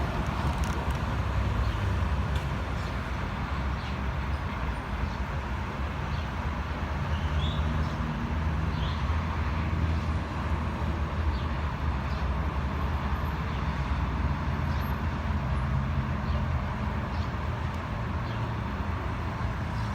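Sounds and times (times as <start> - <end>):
train wagons rolling: 0.0 - 1.2
locomotive engine rumble: 0.0 - 5.0.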